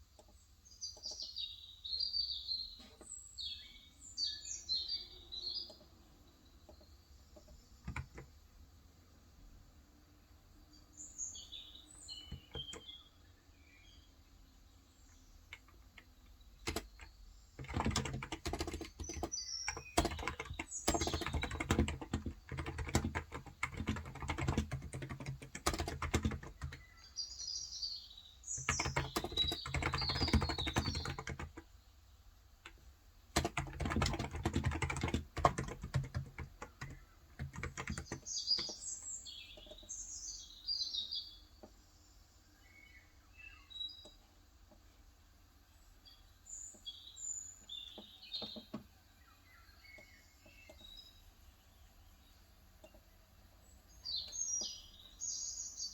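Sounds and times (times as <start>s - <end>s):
small birds chirping: 0.0s - 55.9s
fast typing on keyboard: 7.4s - 8.3s, 12.2s - 12.9s, 16.6s - 27.0s, 28.6s - 31.7s, 32.6s - 38.8s.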